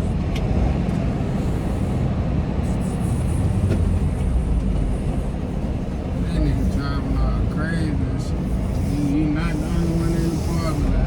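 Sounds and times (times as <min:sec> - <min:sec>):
road noise: 0:00.0 - 0:11.0
truck engine rumble: 0:00.0 - 0:11.0.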